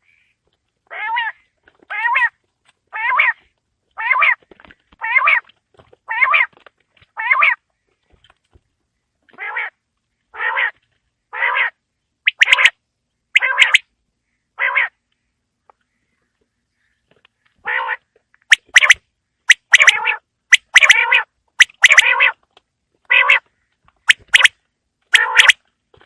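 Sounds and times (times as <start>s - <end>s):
quail calling: 0.9s - 3.4s, 4.0s - 4.4s, 5.0s - 5.5s, 6.1s - 6.5s, 7.2s - 7.6s, 11.4s - 12.8s, 13.4s - 13.8s, 17.6s - 22.4s, 23.1s - 23.5s, 24.1s - 24.5s, 25.1s - 25.6s.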